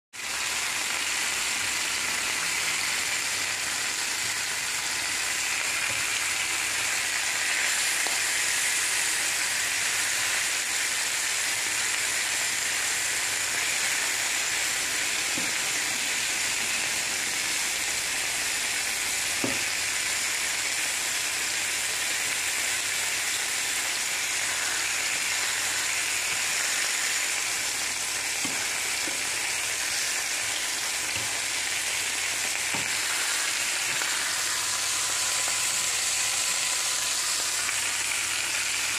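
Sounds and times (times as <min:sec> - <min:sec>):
sausage patties sizzling: 0:00.2 - 0:38.9
spatula knocking on pan: 0:19.4 - 0:19.6.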